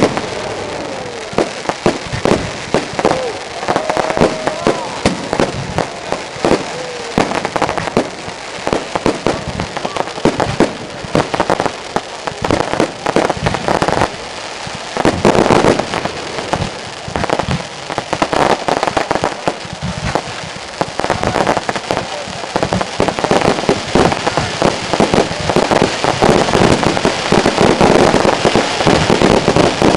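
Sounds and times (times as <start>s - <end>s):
fireworks bangs and crackling: 0.0s - 29.9s.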